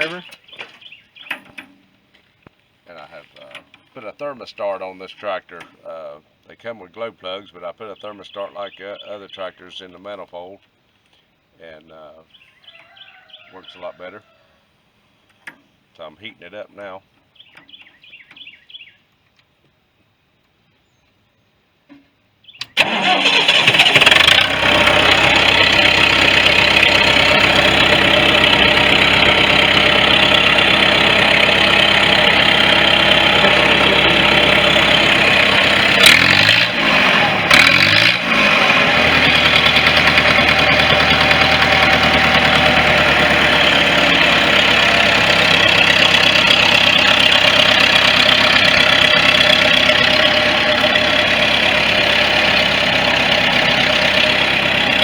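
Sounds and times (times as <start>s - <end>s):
diesel tractor engine: 0.0s - 10.4s, 22.6s - 55.0s.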